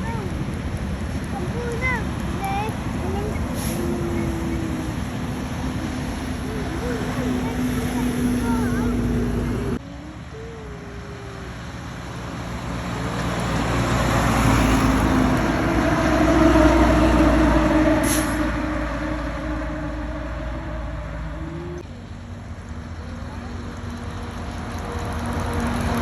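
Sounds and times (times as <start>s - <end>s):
truck driving past: 0.7s - 10.4s, 11.0s - 26.0s.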